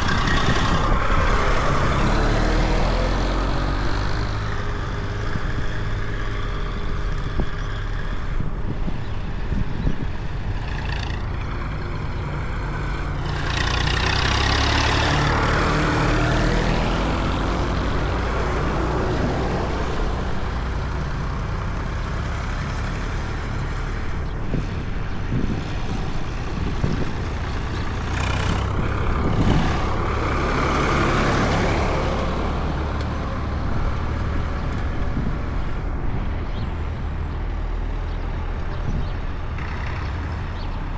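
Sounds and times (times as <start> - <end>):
diesel tractor engines running: 0.0 - 40.9.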